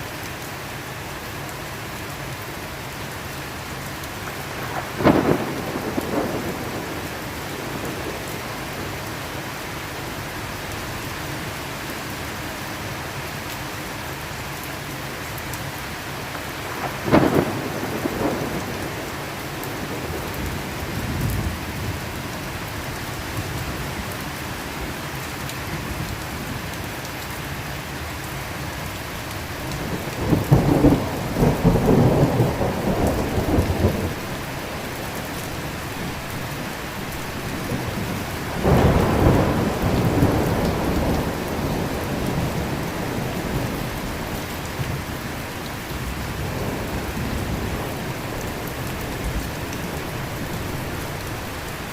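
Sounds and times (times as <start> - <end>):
steady rain falling: 0.0 - 51.9
thunder rumbling: 4.4 - 8.9, 16.6 - 22.0, 29.1 - 51.9.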